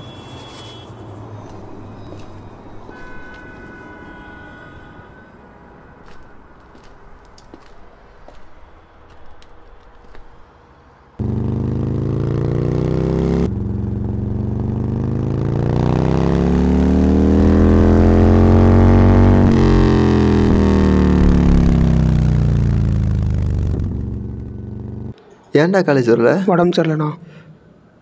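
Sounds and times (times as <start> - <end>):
motorbike engine accelerating: 11.2 - 25.2.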